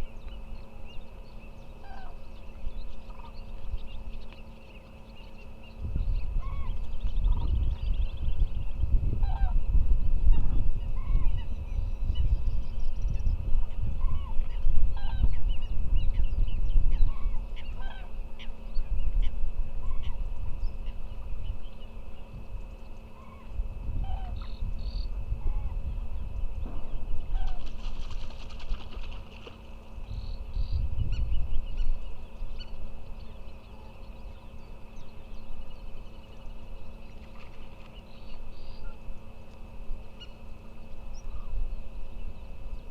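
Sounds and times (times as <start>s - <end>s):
waterbirds honking: 1.4s - 5.7s, 6.4s - 7.4s, 9.2s - 9.6s, 14.0s - 15.4s, 17.0s - 18.6s, 19.8s - 20.2s, 22.7s - 25.8s, 27.2s - 30.7s.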